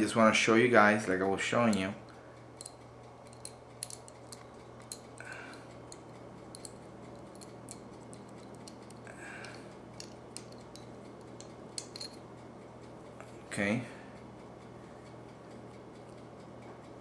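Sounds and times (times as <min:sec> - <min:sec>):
steady low hum: 0:00.0 - 0:17.0
small metal parts clicking: 0:01.6 - 0:12.3.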